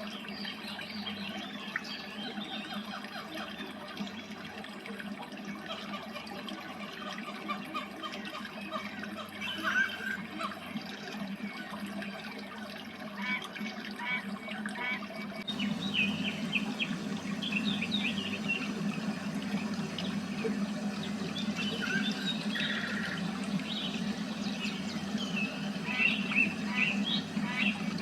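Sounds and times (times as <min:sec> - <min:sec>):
small birds chirping: 0:15.4 - 0:28.0
waterfall rushing: 0:15.5 - 0:28.0.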